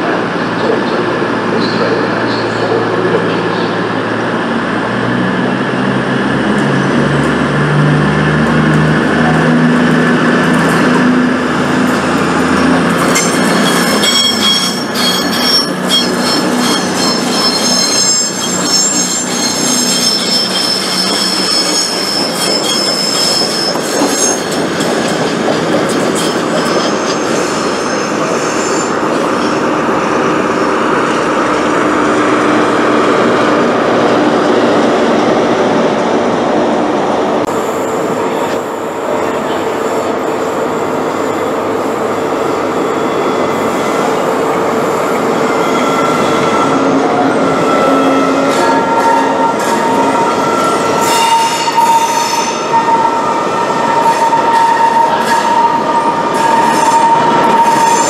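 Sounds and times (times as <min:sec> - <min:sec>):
diesel train engines droning: 0:00.0 - 0:58.0
train rumbling on track: 0:00.0 - 0:58.0
train wheels squealing: 0:13.0 - 0:29.6, 0:45.1 - 0:58.0.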